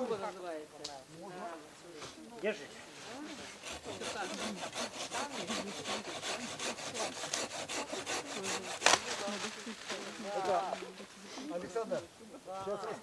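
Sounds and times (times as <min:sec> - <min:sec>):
saw cutting firewood: 0:03.0 - 0:09.6
wood cracking: 0:06.2 - 0:10.8.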